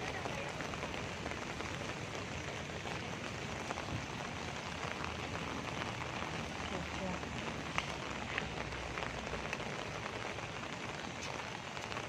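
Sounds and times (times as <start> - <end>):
rain on a wet street: 0.0 - 12.0.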